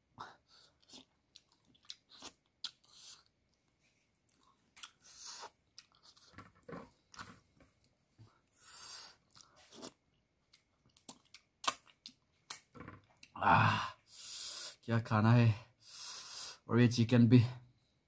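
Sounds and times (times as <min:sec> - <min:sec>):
chewing and crunching: 0:00.5 - 0:07.2, 0:09.3 - 0:13.4
wet mouth clicks: 0:00.8 - 0:03.3, 0:10.9 - 0:12.7.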